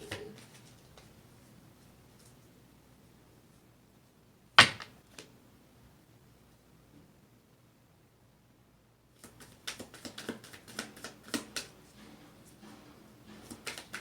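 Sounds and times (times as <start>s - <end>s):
cards being shuffled: 9.2s - 11.8s, 12.8s - 14.0s.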